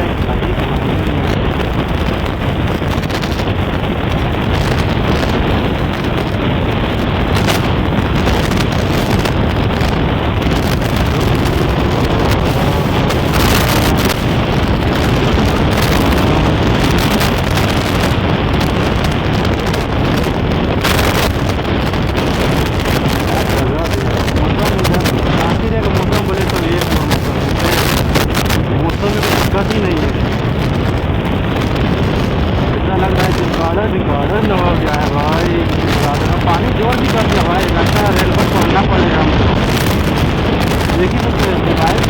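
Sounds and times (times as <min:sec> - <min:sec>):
motorcycle engine running: 0:00.0 - 0:33.6
wind rush on microphone: 0:00.0 - 0:42.0.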